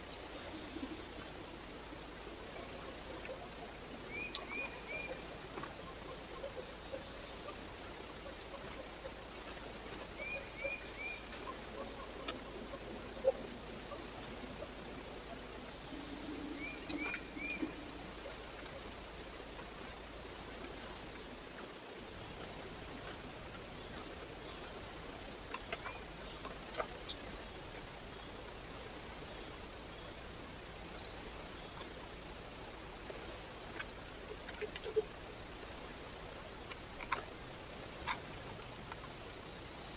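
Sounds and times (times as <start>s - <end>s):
small birds chirping: 0.0s - 20.3s, 22.0s - 32.4s
microphone hiss: 0.0s - 39.9s
faint clicks: 4.1s - 6.2s, 33.0s - 39.9s.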